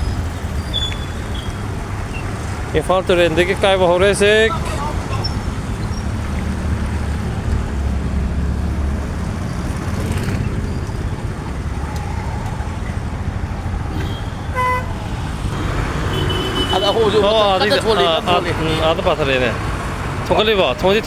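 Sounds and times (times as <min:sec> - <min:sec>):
vehicle engine rumbling: 0:00.0 - 0:21.0
horn toot: 0:13.9 - 0:19.3.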